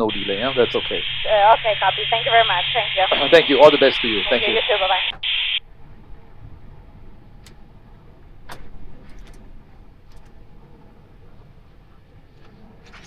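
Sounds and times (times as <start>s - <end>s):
interphone hiss: 0.0s - 5.6s
cockpit engine rumble: 0.0s - 13.0s.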